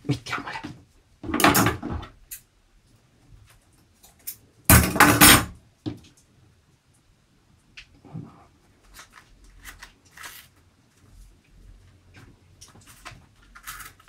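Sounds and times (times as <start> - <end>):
paper handling noise: 8.7 - 14.0.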